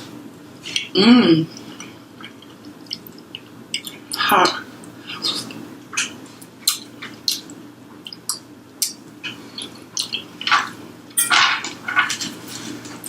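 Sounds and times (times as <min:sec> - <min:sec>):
person chewing: 0:02.2 - 0:04.2, 0:04.8 - 0:10.8.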